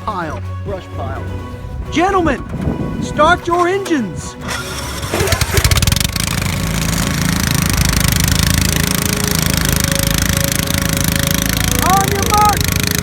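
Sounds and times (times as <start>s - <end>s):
small gas engines idling: 3.4s - 13.0s.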